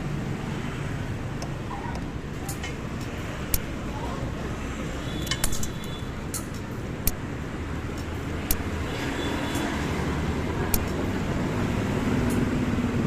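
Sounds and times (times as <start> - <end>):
street traffic rumble: 0.0 - 13.0
short sharp clicks: 5.2 - 7.2, 8.0 - 8.7.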